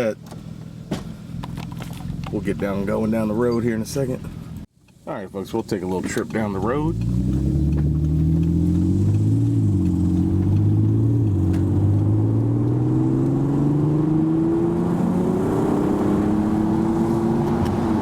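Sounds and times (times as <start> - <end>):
car engine accelerating: 5.8 - 18.0.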